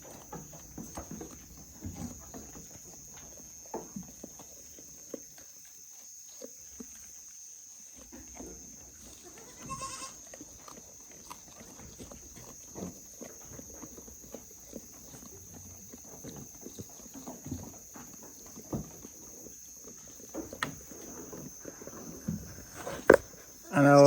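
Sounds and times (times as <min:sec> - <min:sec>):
hooves knocking and rustling: 0:00.0 - 0:24.0
goat high-pitched call: 0:09.1 - 0:10.3.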